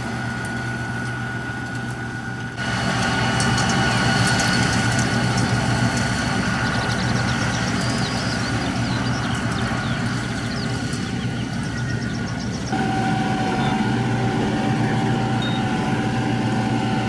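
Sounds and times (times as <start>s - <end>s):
tractor engine running: 0.0s - 17.0s
high whine: 12.7s - 17.0s.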